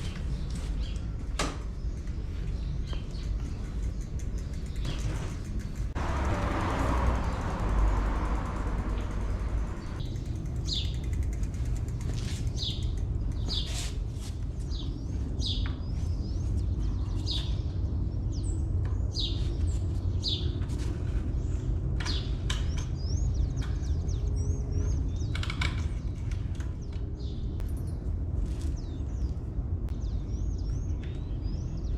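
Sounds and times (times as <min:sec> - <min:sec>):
steady low rumble: 0:02.0 - 0:13.4.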